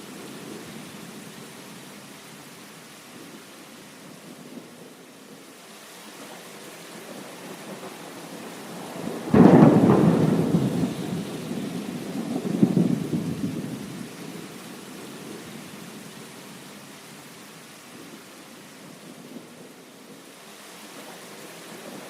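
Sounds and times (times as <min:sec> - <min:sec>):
steady rain: 0:00.0 - 0:22.0
thunder rumbling: 0:07.0 - 0:15.9.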